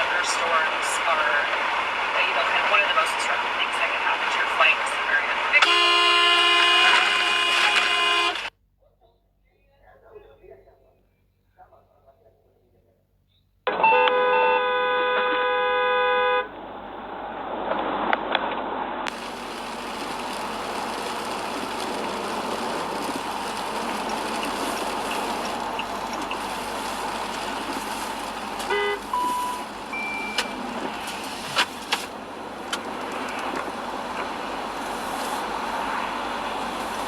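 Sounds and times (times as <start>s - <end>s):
road traffic noise: 0.0s - 8.5s, 13.7s - 37.0s
car horn toot: 5.1s - 8.5s, 13.7s - 16.5s, 28.6s - 30.8s
short beeps: 28.7s - 30.6s.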